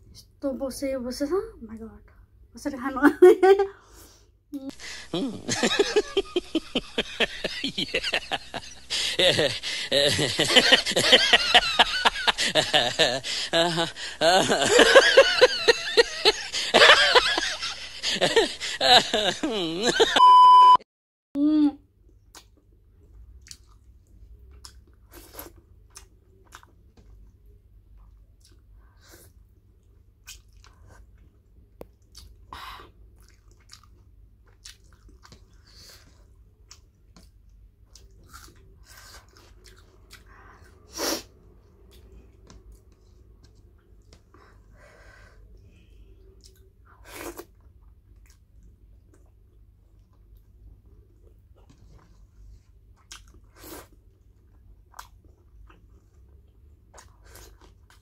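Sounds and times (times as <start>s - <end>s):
steady test-card beep: 20.2s - 20.8s
close-miked chewing: 22.3s - 28.9s, 29.6s - 32.5s, 33.1s - 35.8s, 36.6s - 40.8s, 52.9s - 53.5s.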